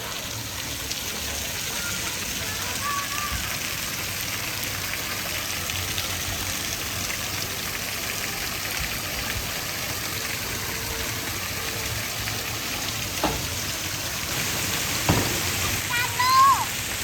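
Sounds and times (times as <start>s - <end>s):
heavy rain falling: 9.6s - 17.0s
knock: 13.2s - 13.6s, 15.1s - 15.6s.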